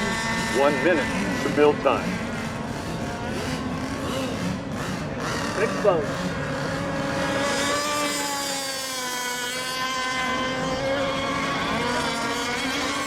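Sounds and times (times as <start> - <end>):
model boat engines running: 0.0 - 13.0.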